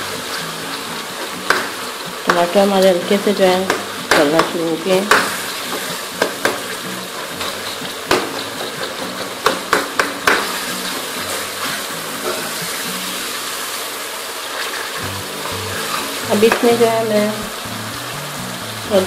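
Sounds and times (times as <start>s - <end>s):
masala sizzling in a pan: 0.0s - 19.0s
metal ladle knocking on pan: 1.4s - 3.0s, 3.6s - 11.1s, 15.8s - 17.0s.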